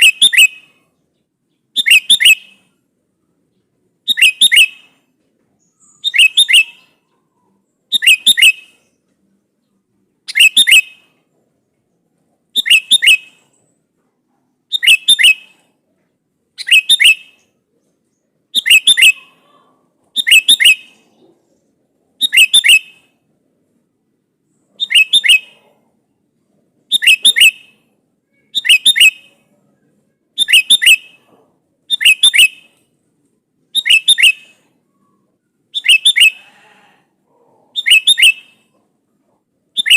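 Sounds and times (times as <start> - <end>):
bulbul call: 5.8 - 7.2, 7.9 - 8.8, 18.6 - 19.6, 24.8 - 25.7, 26.9 - 27.8, 30.4 - 31.3, 33.8 - 36.4, 37.8 - 38.8.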